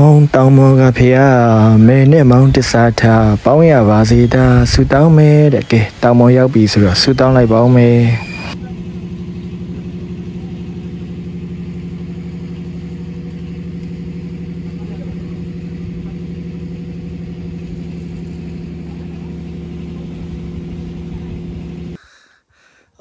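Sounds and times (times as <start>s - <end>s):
engine running with fast pulse: 0.0s - 22.0s.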